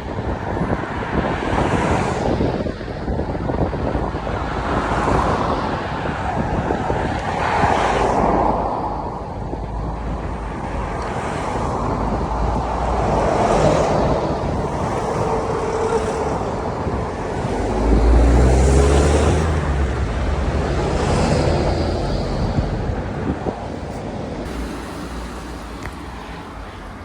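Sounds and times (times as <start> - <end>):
wind rushing over microphone: 0.0 - 27.0
vehicle engine rumble passing: 7.6 - 27.0.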